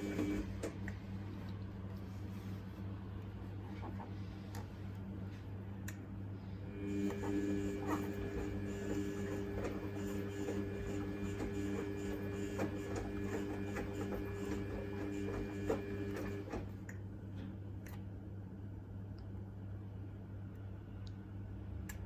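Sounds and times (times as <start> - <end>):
washing machine motor whine: 0.0 - 1.5, 6.6 - 16.9.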